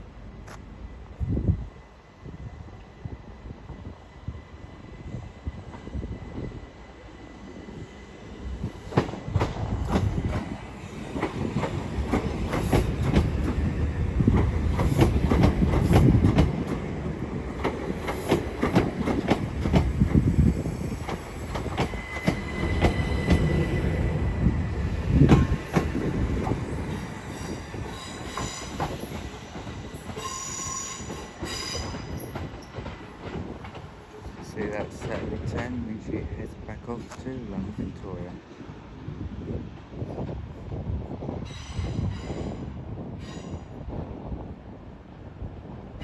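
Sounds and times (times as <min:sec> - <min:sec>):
train rumbling: 0:00.0 - 0:46.0
train wheel squeal: 0:20.5 - 0:24.5, 0:26.6 - 0:32.9, 0:41.3 - 0:43.8.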